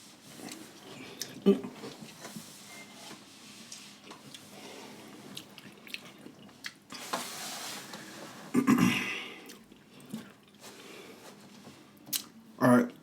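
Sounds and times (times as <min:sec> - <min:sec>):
mouth chewing and lip-smacking: 0:05.3 - 0:06.9, 0:12.1 - 0:12.4.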